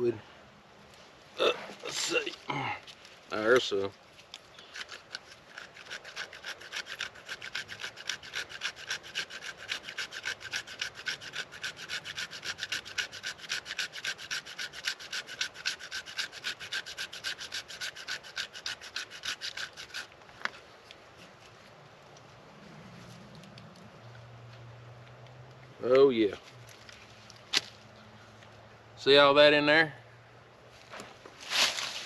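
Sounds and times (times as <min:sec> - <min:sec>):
knife scraping wood: 0:01.4 - 0:21.8.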